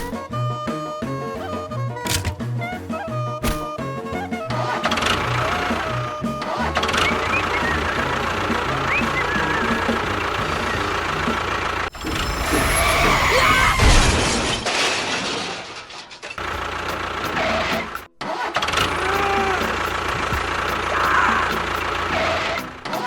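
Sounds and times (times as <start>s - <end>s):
motor running: 4.5s - 13.3s, 16.4s - 23.0s.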